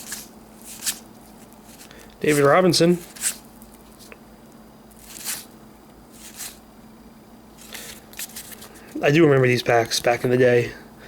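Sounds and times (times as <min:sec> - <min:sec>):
cards sliding soft swishes: 0:00.0 - 0:04.2, 0:05.0 - 0:06.6, 0:07.6 - 0:09.0.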